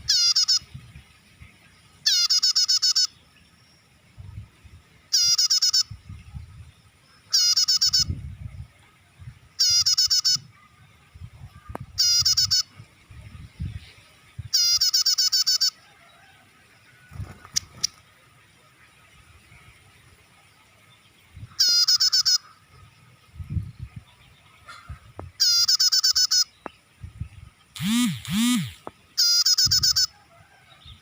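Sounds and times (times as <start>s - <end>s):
bird call with harsh trills: 0.0s - 0.7s, 2.0s - 3.2s, 5.1s - 5.9s, 7.3s - 8.1s, 12.0s - 12.7s, 14.5s - 15.8s, 21.6s - 22.6s, 25.4s - 26.5s, 27.8s - 30.2s.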